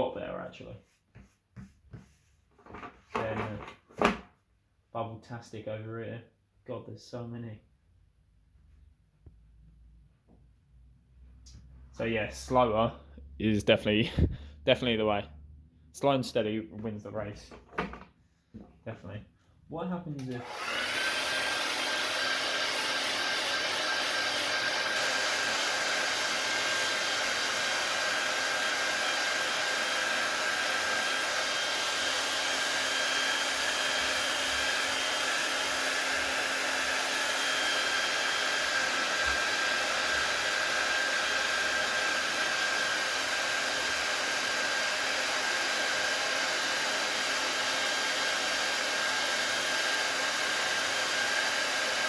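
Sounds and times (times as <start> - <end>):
hairdryer running: 20.1 - 52.0.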